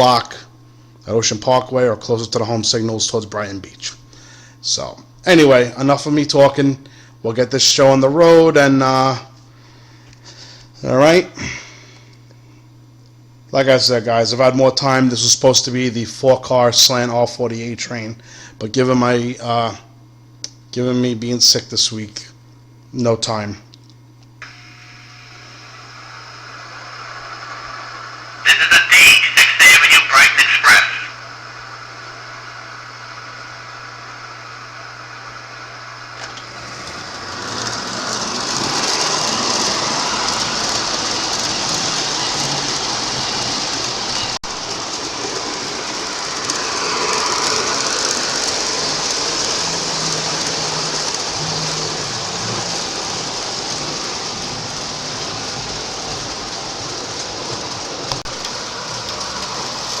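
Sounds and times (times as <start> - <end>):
model train motor and wheels whirring: 24.4 - 60.0.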